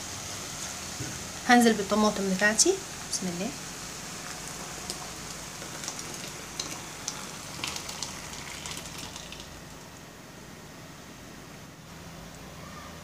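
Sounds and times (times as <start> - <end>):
food sizzling and crackling: 0.0 - 10.1
soft steady simmer: 0.0 - 12.9
liquid pouring into pot: 4.1 - 10.0.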